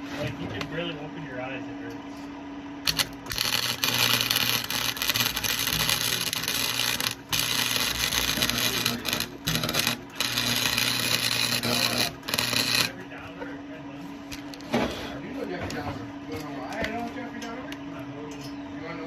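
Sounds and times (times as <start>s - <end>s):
low electrical hum: 0.0s - 19.0s
welder arc crackling: 2.8s - 13.1s, 14.3s - 14.7s.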